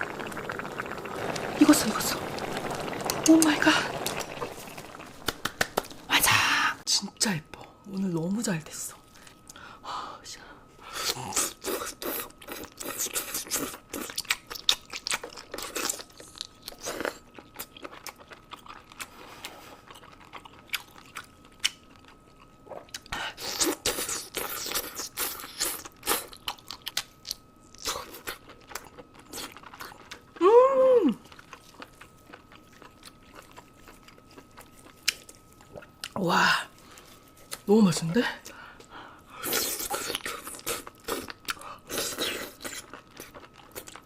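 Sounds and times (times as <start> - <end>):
crunchy chewing: 11.1 - 30.4, 31.2 - 36.2, 39.4 - 44.0
person humming: 30.4 - 31.2.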